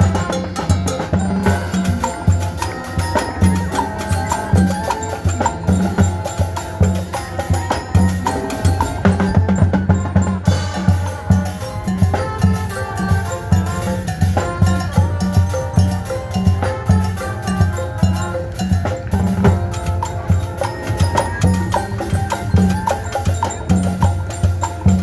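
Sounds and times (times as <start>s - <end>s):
drum beat: 0.0s - 25.0s
sustained melody notes: 0.0s - 25.0s.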